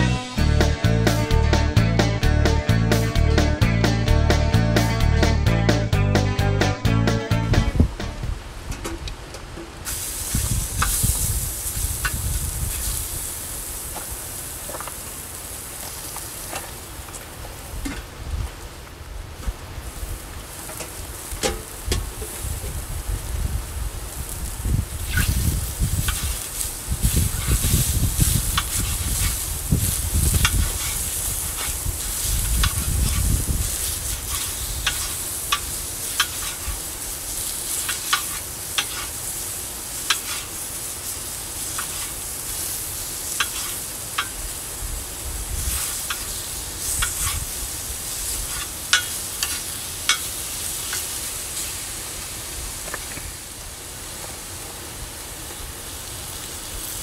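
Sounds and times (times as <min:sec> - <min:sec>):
food sizzling on a griddle: 0:09.8 - 0:18.8, 0:19.4 - 0:57.0
metal utensil scraping steel pan: 0:34.1 - 0:36.7, 0:37.7 - 0:39.1, 0:40.1 - 0:40.5, 0:41.7 - 0:42.2, 0:43.3 - 0:44.4, 0:45.7 - 0:47.4, 0:48.4 - 0:50.3.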